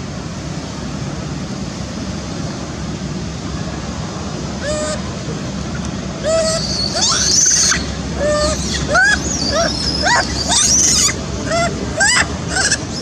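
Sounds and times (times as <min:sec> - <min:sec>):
baby monkey crying: 0:04.6 - 0:05.1, 0:06.2 - 0:13.0.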